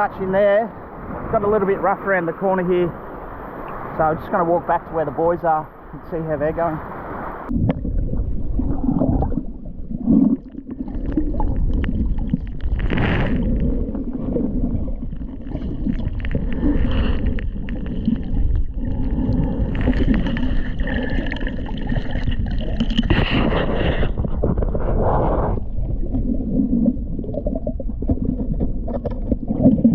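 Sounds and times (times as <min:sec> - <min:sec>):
underwater rumble of water: 0:00.0 - 0:29.9
gurgling bubbles: 0:07.5 - 0:29.9.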